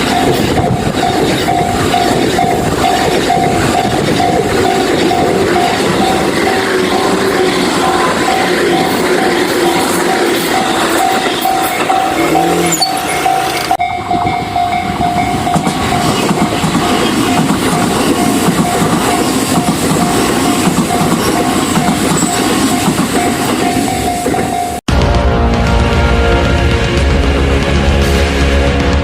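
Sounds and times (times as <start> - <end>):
level crossing bell ringing: 0.0 - 16.6
train wheels rumbling and clattering: 0.0 - 29.0.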